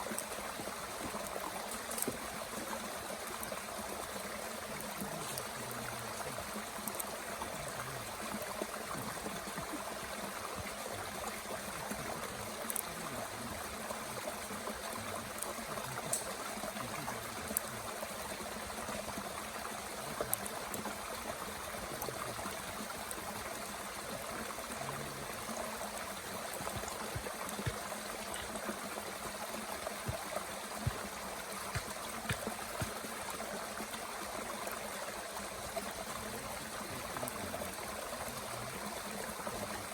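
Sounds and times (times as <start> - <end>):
mountain stream flowing: 0.0 - 39.9
wood fire crackling and popping: 1.1 - 2.2, 6.8 - 7.2, 15.3 - 16.6, 25.6 - 28.6, 29.4 - 33.9.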